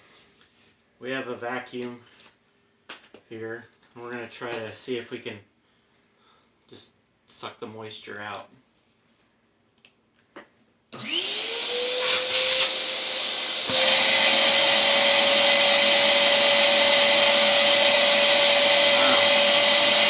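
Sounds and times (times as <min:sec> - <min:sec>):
vacuum cleaner motor whine: 0:11.0 - 0:20.0.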